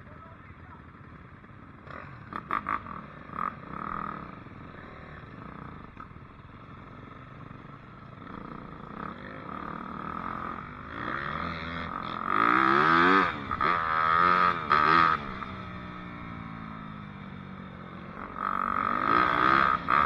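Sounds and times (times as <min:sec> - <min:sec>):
dirt bike engine revving: 0:08.4 - 0:15.6, 0:18.2 - 0:20.0.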